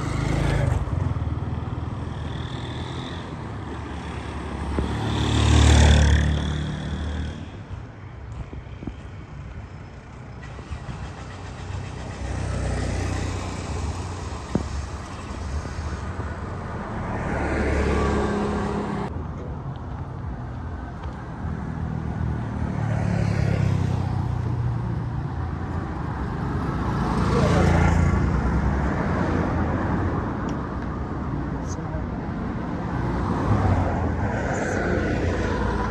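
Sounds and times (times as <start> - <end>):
vehicles passing: 0.0 - 35.9.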